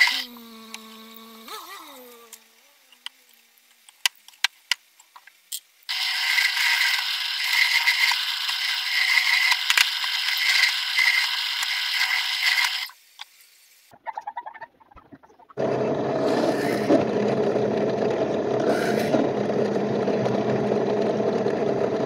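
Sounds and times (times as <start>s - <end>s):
drill press boring into wood: 0.0s - 1.5s, 5.9s - 12.9s, 15.6s - 22.0s.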